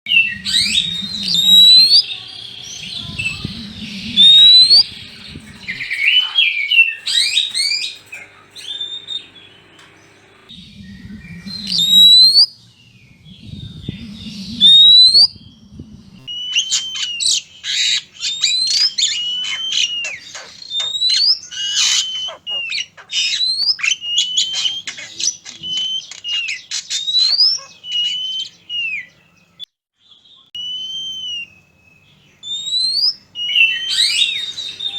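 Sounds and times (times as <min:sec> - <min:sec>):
loud low bursts: 0:00.1 - 0:05.9, 0:09.0 - 0:16.3
birds whistling calls: 0:00.1 - 0:34.9.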